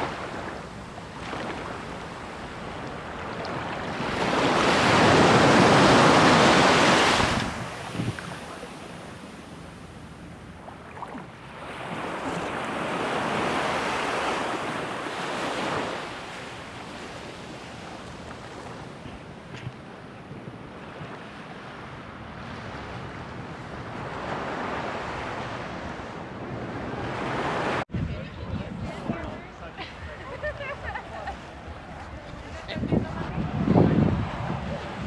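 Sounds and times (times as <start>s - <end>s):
wind on microphone: 0.0s - 14.9s, 22.4s - 35.0s
ocean surf washing up beach: 0.0s - 19.1s.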